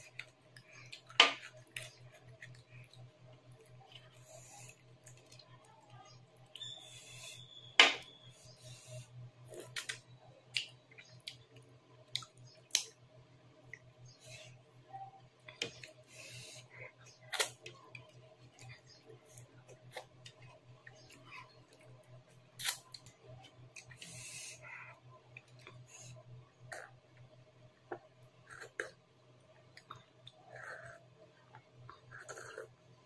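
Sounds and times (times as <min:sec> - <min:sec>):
mouth clicks and smacks chewing: 0:09.5 - 0:13.0.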